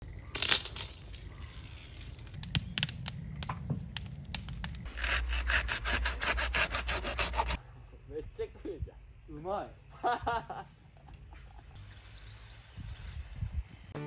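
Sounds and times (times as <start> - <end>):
sharp knocks and scrapes: 4.3 - 7.6
saw cutting through wood: 4.9 - 7.6.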